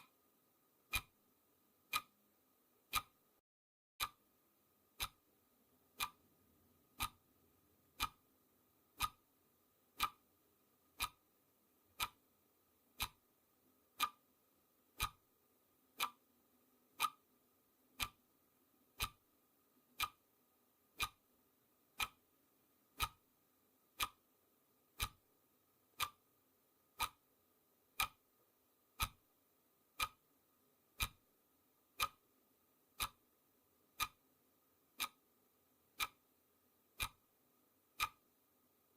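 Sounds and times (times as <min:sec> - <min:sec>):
clock ticking: 0:00.0 - 0:01.2, 0:01.8 - 0:03.3, 0:04.0 - 0:08.3, 0:08.9 - 0:10.3, 0:10.9 - 0:18.3, 0:18.9 - 0:38.9.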